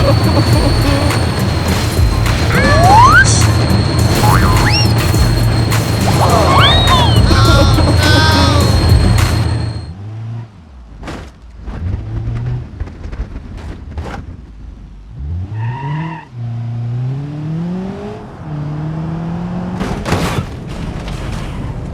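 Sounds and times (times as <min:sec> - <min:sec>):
cartoon engine revving: 0:00.0 - 0:05.4, 0:06.0 - 0:09.3
noisy burst: 0:00.0 - 0:09.9.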